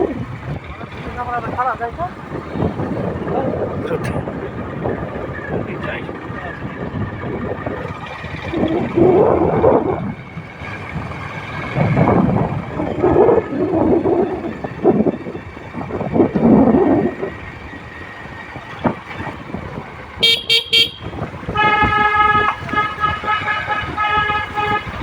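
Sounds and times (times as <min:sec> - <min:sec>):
motorbike riding: 0:00.0 - 0:25.0
vehicle horn beeps: 0:20.2 - 0:25.0.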